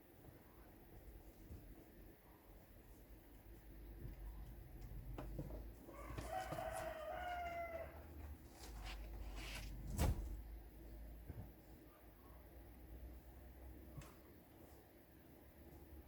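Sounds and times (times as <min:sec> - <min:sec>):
rooster crowing: 0:05.9 - 0:08.2.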